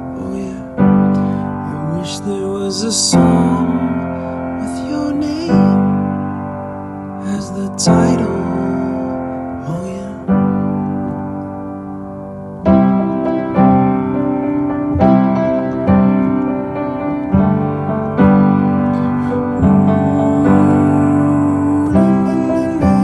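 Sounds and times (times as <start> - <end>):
piano chords: 0.0 - 23.0.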